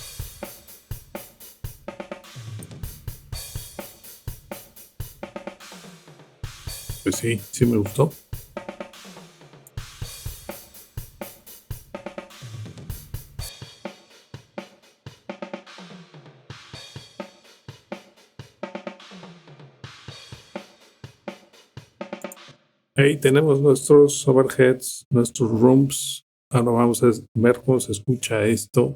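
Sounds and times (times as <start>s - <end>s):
drum kit playing a groove: 0.0s - 22.5s.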